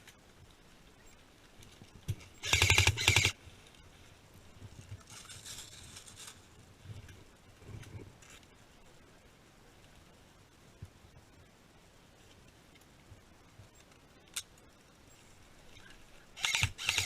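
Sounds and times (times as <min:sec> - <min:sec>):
faint rustling: 0:00.0 - 0:16.9
airsoft gun rapid burst: 0:02.4 - 0:03.3, 0:16.4 - 0:17.0.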